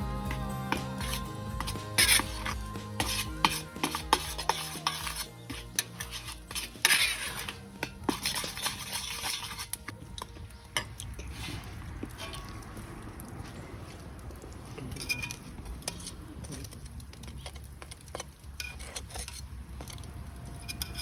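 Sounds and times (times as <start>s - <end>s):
metal utensil clinking on pot: 1.0s - 11.3s, 14.9s - 21.0s.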